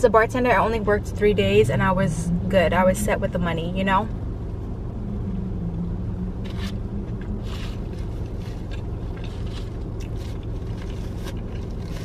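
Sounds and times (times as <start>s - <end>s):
low hum inside a car: 0.0s - 12.0s
person chewing food: 6.4s - 12.0s.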